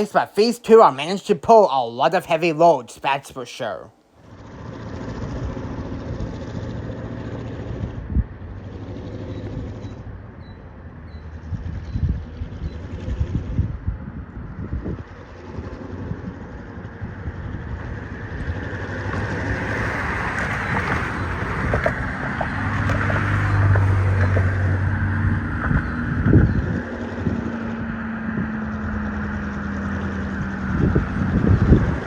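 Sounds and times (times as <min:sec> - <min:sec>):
diesel locomotive engine droning: 0:04.3 - 0:32.0
rolling freight car wheels: 0:18.5 - 0:24.8.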